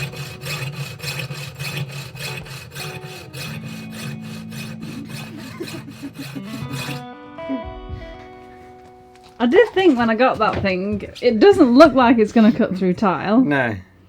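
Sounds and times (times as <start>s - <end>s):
hand saw rasping through tile: 0.0s - 7.0s, 9.4s - 11.9s.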